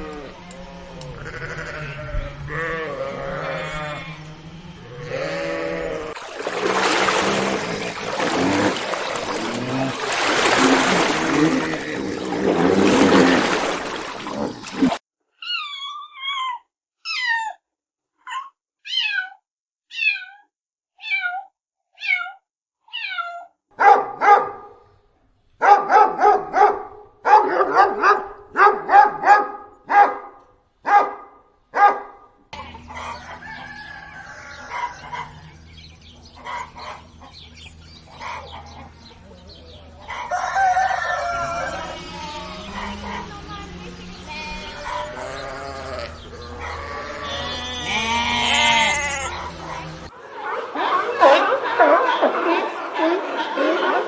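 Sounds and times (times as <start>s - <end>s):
mixed animal calls: 0.0s - 17.6s, 40.0s - 54.0s.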